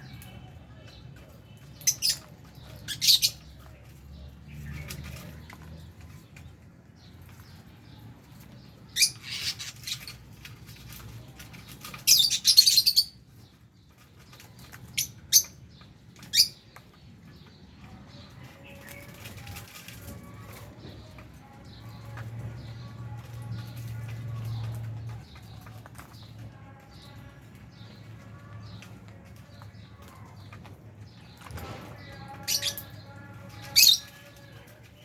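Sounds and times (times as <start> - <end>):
lovebirds chirping shrilly: 1.6 - 3.6, 8.7 - 11.0, 11.6 - 13.6, 31.2 - 35.0.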